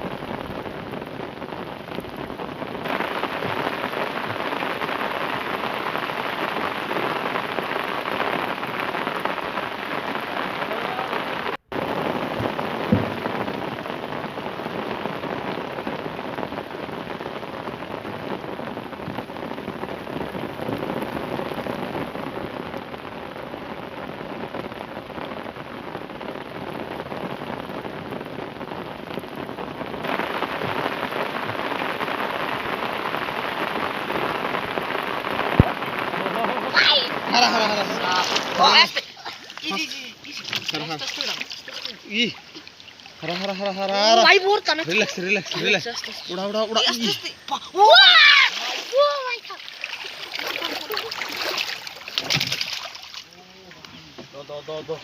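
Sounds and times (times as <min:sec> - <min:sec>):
rain falling on water: 0:00.0 - 0:55.0
sharp knock: 0:12.9 - 0:13.2.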